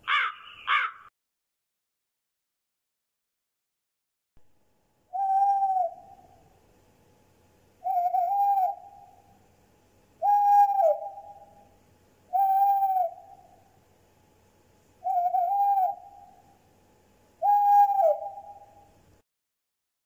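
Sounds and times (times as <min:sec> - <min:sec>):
owl hooting: 0:00.0 - 0:01.1, 0:05.1 - 0:06.6, 0:07.8 - 0:09.4, 0:10.2 - 0:13.8, 0:15.0 - 0:16.6, 0:17.4 - 0:19.0.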